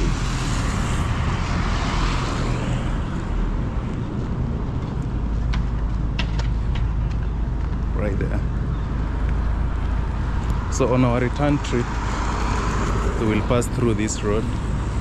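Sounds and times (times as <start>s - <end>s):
rushing noise: 0.0s - 3.8s
vehicle engine and tyres rumbling: 0.0s - 15.0s.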